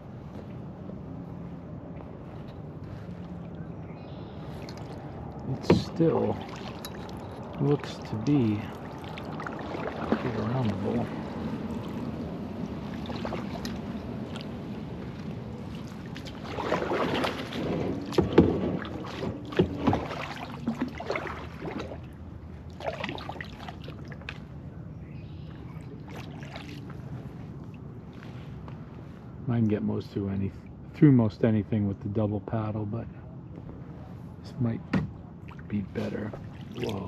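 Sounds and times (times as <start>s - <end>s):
paddle swishing through water: 0.0s - 24.7s, 25.3s - 29.2s, 35.4s - 37.0s.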